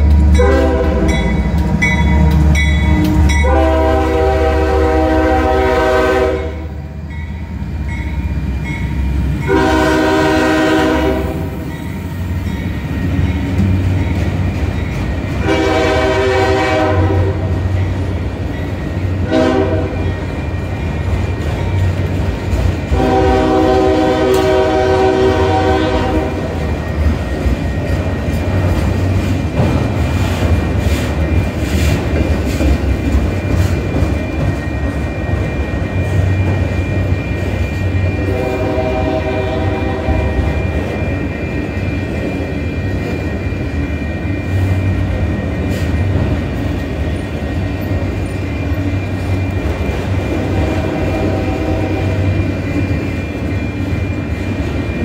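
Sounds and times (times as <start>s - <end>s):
locomotive air horn blasts: 0.3s - 1.3s, 2.8s - 6.8s, 9.4s - 11.5s, 15.4s - 17.6s, 19.2s - 20.0s, 22.9s - 26.6s, 38.1s - 40.5s, 50.3s - 52.3s
freight cars rumbling and clattering: 11.5s - 15.5s, 19.9s - 23.1s, 26.2s - 38.2s, 40.4s - 51.0s.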